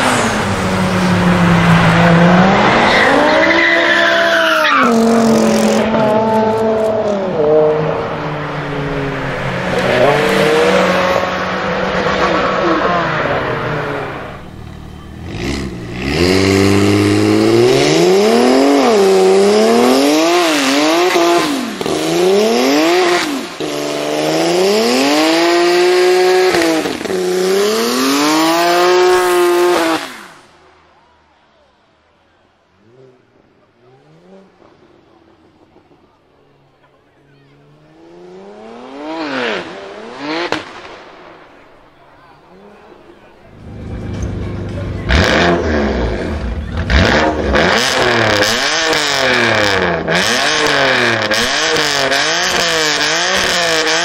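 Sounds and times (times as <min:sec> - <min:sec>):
car engine accelerating: 0:00.0 - 0:30.4, 0:32.8 - 0:54.0
engine revving: 0:04.8 - 0:30.4, 0:37.6 - 0:41.0, 0:43.5 - 0:54.0.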